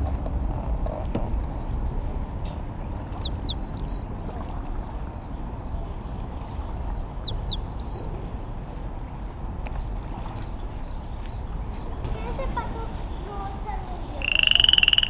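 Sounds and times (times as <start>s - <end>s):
songbird singing: 2.0s - 8.8s, 10.4s - 15.0s.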